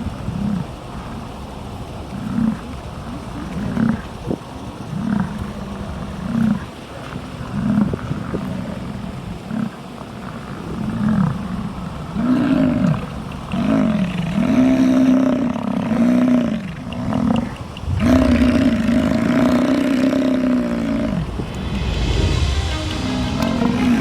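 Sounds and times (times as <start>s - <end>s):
bison bellowing: 10.6s - 21.4s.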